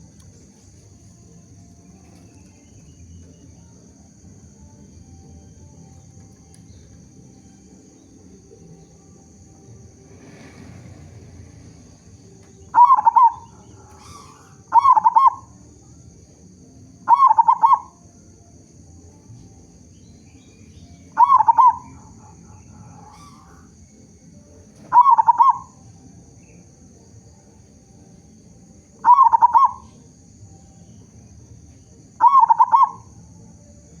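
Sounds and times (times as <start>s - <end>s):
dove cooing: 6.1s - 15.8s, 17.0s - 18.2s, 21.0s - 26.7s, 28.6s - 33.4s.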